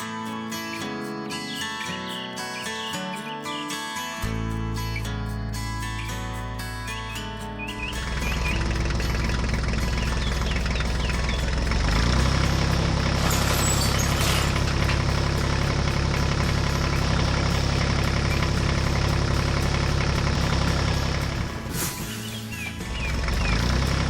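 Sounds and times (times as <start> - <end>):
construction machine engine running: 7.8 - 24.0
burst of hiss: 21.7 - 22.6.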